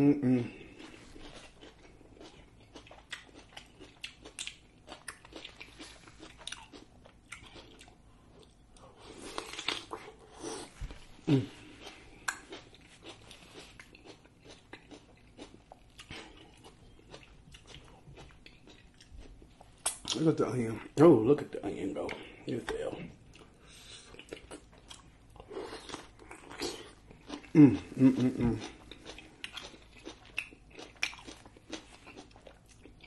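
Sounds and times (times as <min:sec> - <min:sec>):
person humming mm: 0:00.0 - 0:00.8, 0:11.2 - 0:11.7, 0:27.4 - 0:28.7
food crunching and chewing: 0:00.5 - 0:20.3, 0:22.0 - 0:33.0.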